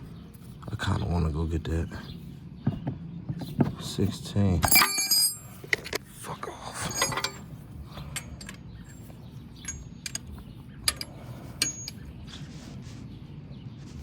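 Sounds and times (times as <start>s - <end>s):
steady low hum: 0.0s - 14.0s
metal hand tools clinking: 4.6s - 6.0s, 6.8s - 7.5s, 8.1s - 10.2s, 10.9s - 12.0s.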